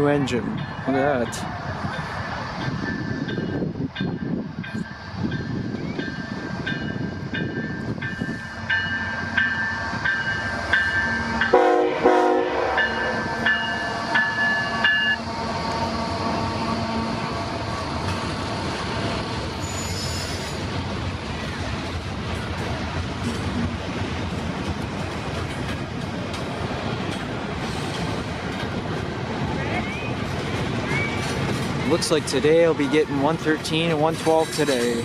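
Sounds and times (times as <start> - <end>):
freight train rumbling past: 0.0 - 35.0
locomotive horn blast: 11.2 - 17.6.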